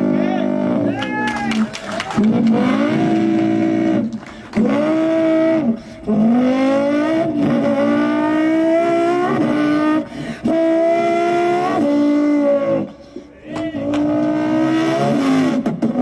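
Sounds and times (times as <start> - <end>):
boy imitating racing engine: 0.0 - 4.0.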